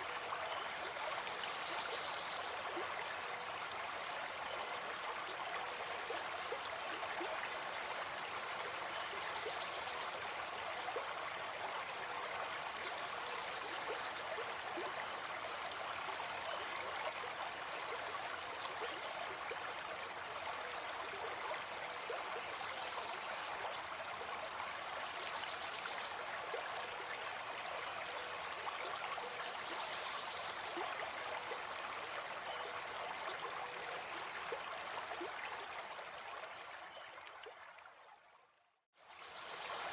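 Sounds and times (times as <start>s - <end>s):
stream babbling: 0.0s - 38.0s.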